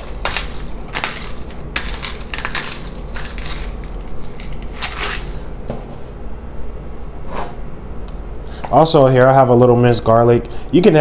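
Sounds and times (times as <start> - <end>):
salt crunching from dispenser: 0.0 - 5.5.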